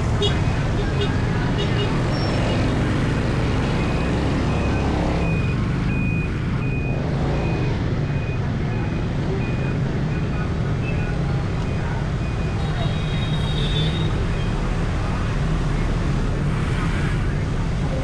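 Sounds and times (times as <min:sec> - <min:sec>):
traffic noise: 0:00.0 - 0:18.0
high electronic beep: 0:02.0 - 0:12.6.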